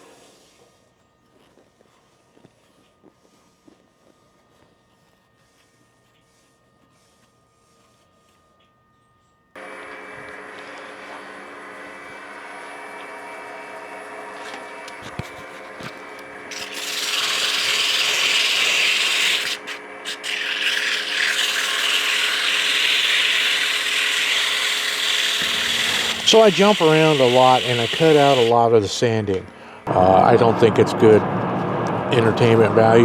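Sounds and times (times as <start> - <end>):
wood lathe motor hum: 9.6 - 33.0
sandpaper rasping on wood: 16.5 - 28.5.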